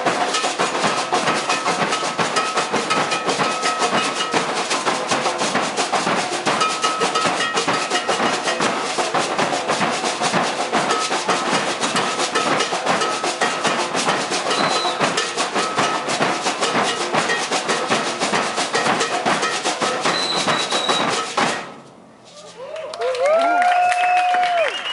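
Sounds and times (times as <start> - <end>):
percussion ensemble drumming: 0.0 - 21.9
ringing bell-like tone: 14.5 - 16.0.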